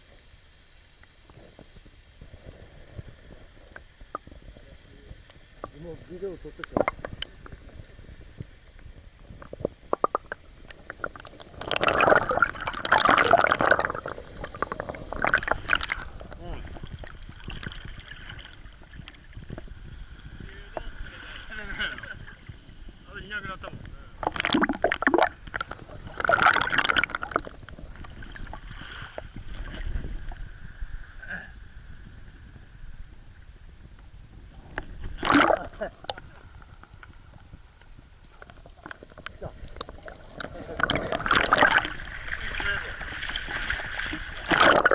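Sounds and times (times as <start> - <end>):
water splashing and gurgling: 1.0 - 31.4, 34.4 - 44.9
water dripping: 8.8 - 22.6
sea water splashing at shore: 38.4 - 44.9.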